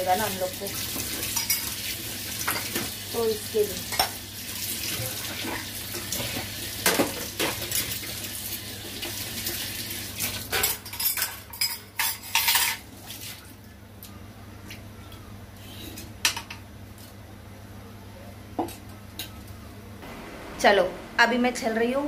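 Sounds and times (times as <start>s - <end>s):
dishes and utensils clinking: 1.2s - 1.8s, 10.4s - 12.9s.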